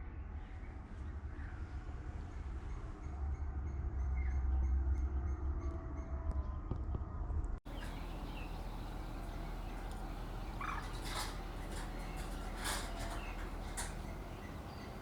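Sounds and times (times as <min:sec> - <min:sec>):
steady outdoor hiss: 0:07.7 - 0:15.0
wetland birds calling: 0:07.7 - 0:15.0.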